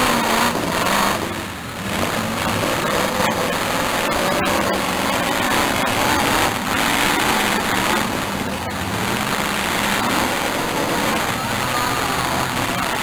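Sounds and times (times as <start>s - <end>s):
car engines running: 0.0s - 13.0s.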